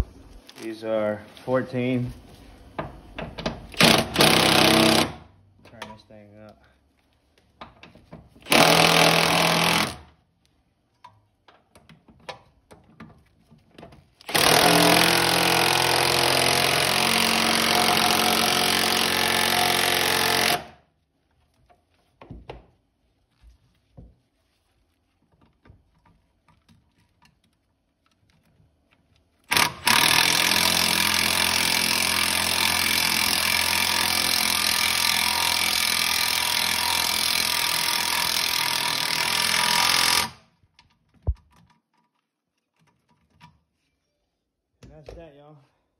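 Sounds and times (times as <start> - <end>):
impact wrench bursts: 3.7 - 5.2, 8.4 - 10.0, 14.2 - 20.8, 29.5 - 40.4.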